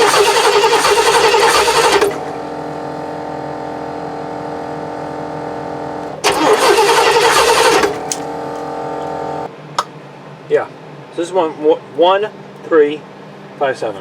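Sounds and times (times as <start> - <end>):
starter cranking engine: 0.0 - 2.4, 6.2 - 8.7.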